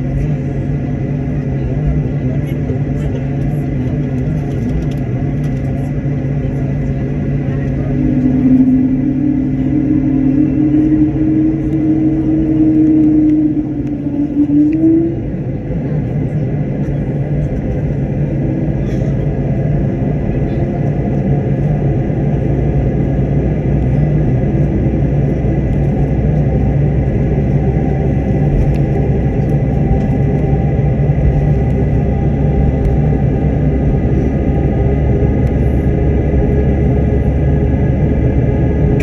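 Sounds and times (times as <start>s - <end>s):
airliner cabin engine rumble: 0.0s - 39.0s.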